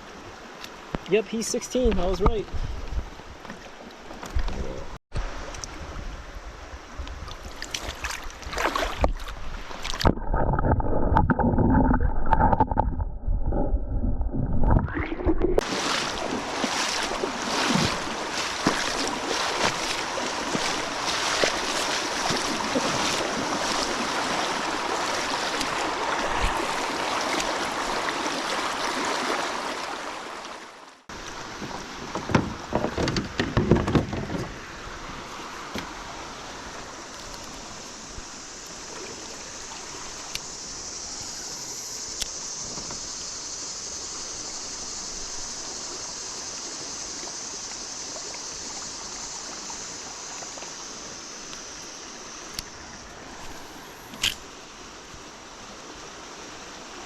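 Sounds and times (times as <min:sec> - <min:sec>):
wind noise: 0:01.8 - 0:03.5, 0:04.2 - 0:28.0
river water rushing: 0:07.4 - 0:10.6, 0:14.9 - 0:32.7, 0:34.5 - 0:40.7.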